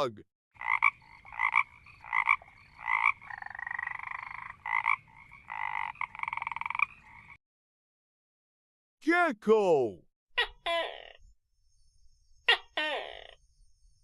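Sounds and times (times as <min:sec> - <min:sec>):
frog croaking and trilling: 0:00.6 - 0:07.4, 0:10.4 - 0:11.3, 0:12.5 - 0:13.5.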